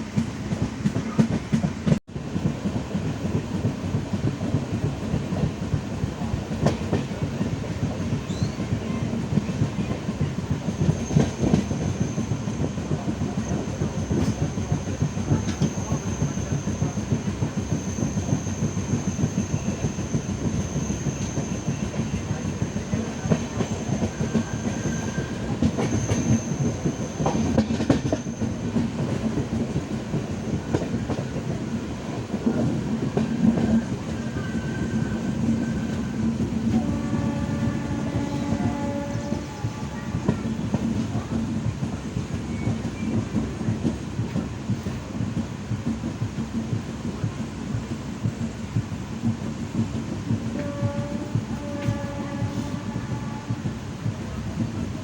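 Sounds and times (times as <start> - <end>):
train wheels clattering on rails: 0.0 - 55.0.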